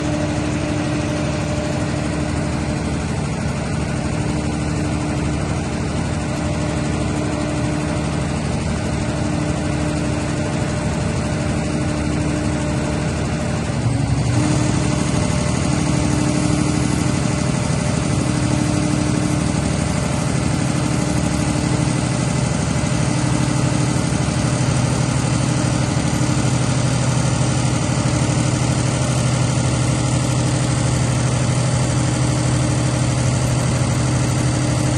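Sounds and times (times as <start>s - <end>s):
diesel generator running: 0.0s - 34.9s.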